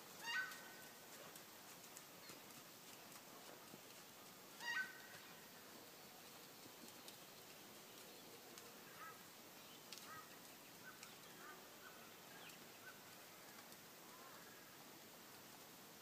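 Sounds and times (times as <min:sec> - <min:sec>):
faint ticks: 0:06.2 - 0:11.5, 0:12.4 - 0:14.5.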